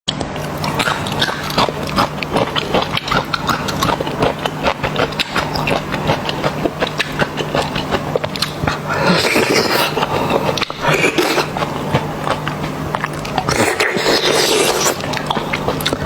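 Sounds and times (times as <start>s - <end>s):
low steady hum: 0.1s - 16.0s
chewing and mouth smacks: 0.4s - 16.0s.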